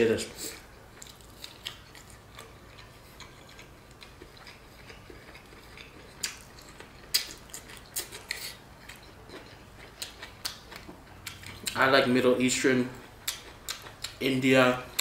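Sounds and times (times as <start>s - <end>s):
chewing mouth clicks and smacks: 1.0s - 11.8s, 13.1s - 14.2s.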